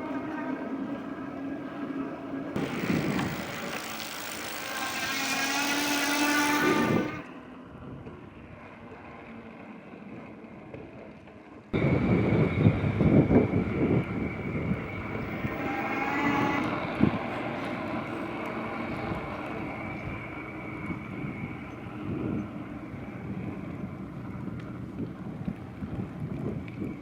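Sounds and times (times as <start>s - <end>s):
ride-on vehicle whining: 2.6s - 7.4s, 11.8s - 27.0s.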